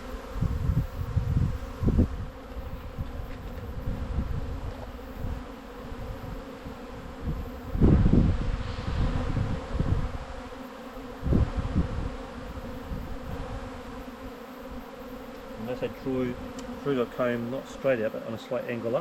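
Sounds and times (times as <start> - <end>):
honey bees buzzing: 0.0 - 19.0
low rumbles on microphone: 7.2 - 10.3.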